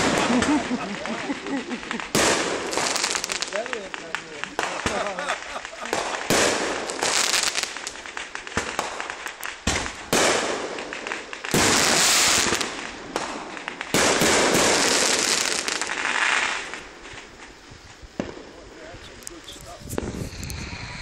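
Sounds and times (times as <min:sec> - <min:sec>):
fireworks crackling and popping: 0:00.0 - 0:21.0.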